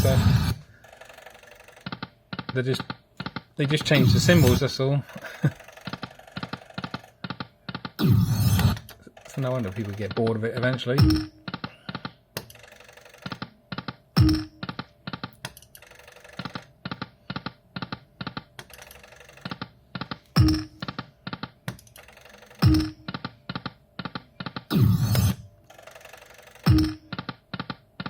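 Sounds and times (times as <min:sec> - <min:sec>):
slot machine reel clicks: 0:00.0 - 0:02.7, 0:03.7 - 0:04.7, 0:05.4 - 0:07.2, 0:07.8 - 0:11.6, 0:12.4 - 0:13.5, 0:14.2 - 0:14.8, 0:15.5 - 0:16.7, 0:18.6 - 0:21.0, 0:21.8 - 0:27.8.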